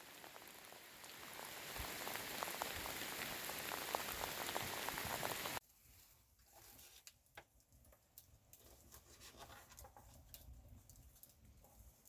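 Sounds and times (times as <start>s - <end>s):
rain pattering: 0.0s - 5.6s.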